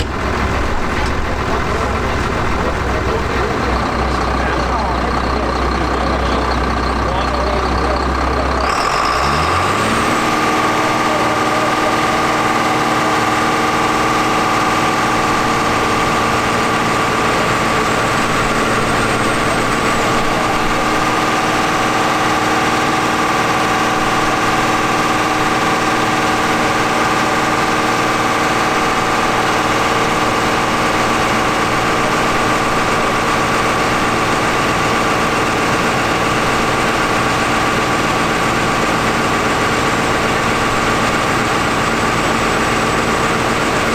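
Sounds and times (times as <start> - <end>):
steady whine: 0.0 - 8.7
tractor diesel engine revving: 0.0 - 43.9.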